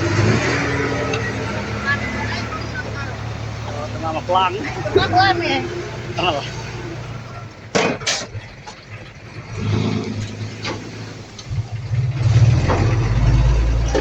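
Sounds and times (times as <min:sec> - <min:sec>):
bulldozer diesel engine running: 0:00.0 - 0:14.0
sharp metallic clanks: 0:07.6 - 0:14.0.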